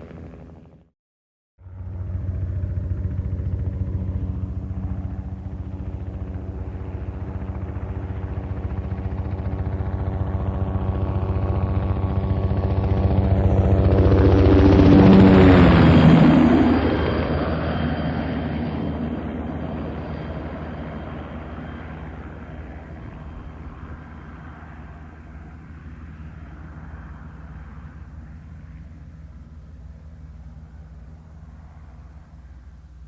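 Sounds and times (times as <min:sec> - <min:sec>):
helicopter rotor chop: 0:01.6 - 0:32.4.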